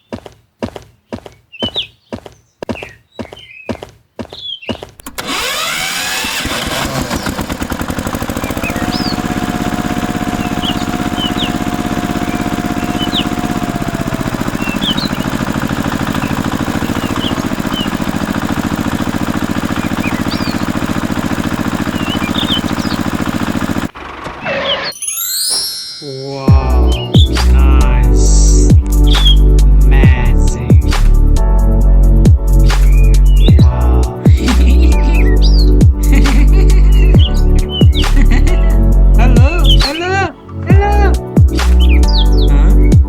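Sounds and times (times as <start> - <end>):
bird chirps: 0.9 - 5.0, 8.3 - 13.7, 14.4 - 18.4, 19.6 - 20.8, 21.7 - 23.3, 24.4 - 31.0, 31.9 - 38.5, 39.3 - 40.7, 41.7 - 43.0
small tractor engine running: 5.0 - 24.9, 26.5 - 43.0.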